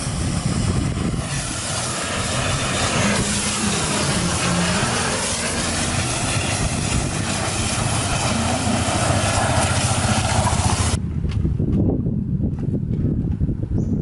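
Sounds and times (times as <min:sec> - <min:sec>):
engine running: 0:00.0 - 0:11.0
loud hiss: 0:00.0 - 0:11.0.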